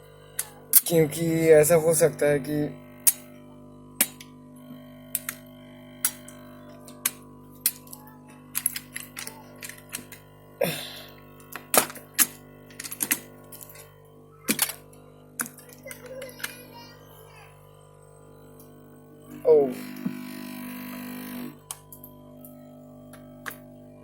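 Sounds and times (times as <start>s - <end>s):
steady hum: 0.0s - 24.0s
clicks of small hard parts: 5.2s - 5.4s, 14.5s - 14.8s.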